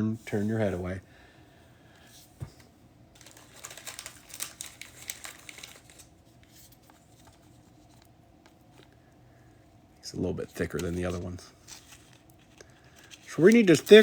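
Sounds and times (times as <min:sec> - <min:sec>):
plastic sleeve crinkling: 0:03.2 - 0:09.0, 0:10.5 - 0:14.0.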